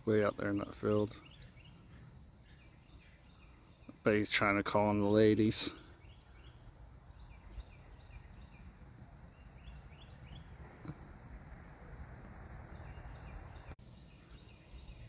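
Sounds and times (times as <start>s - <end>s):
distant birds chirping: 0.0s - 15.0s
low rumble: 6.7s - 13.8s.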